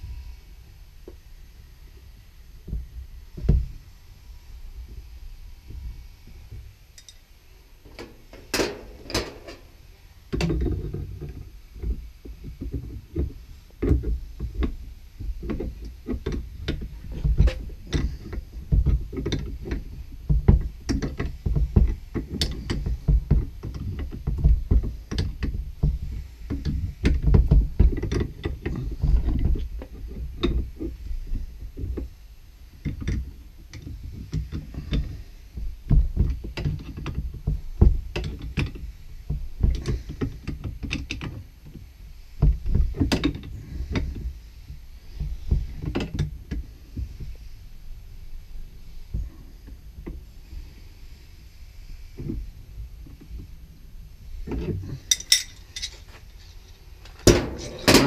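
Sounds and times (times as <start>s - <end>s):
low rumbling handling noise: 1.0s - 32.2s, 41.4s - 58.0s.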